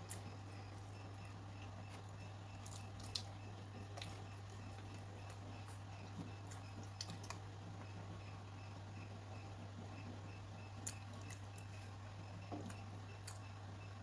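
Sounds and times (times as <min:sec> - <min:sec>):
chewing and utensil clicks: 0:10.8 - 0:11.8.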